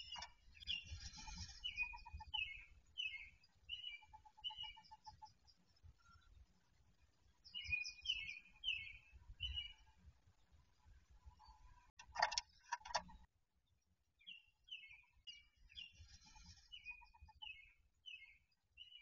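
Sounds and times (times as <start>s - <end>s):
harsh loud bird calls: 0.0s - 5.2s.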